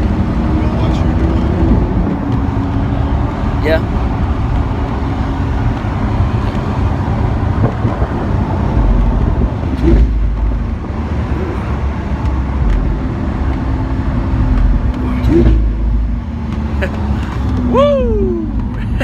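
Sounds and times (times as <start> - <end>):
car engine and road drone: 0.0 - 19.0.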